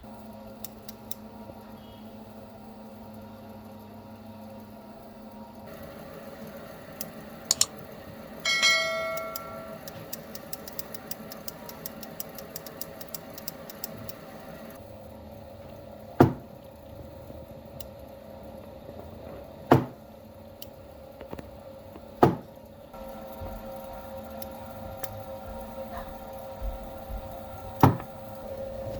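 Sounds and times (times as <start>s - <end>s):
steady low hum: 0.0s - 28.9s
metal ringing when struck: 8.4s - 9.9s.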